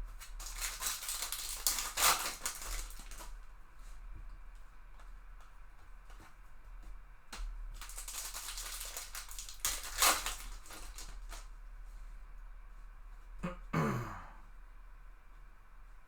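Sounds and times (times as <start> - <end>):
foil wrapper crinkling: 0.1 - 3.5, 7.4 - 11.5.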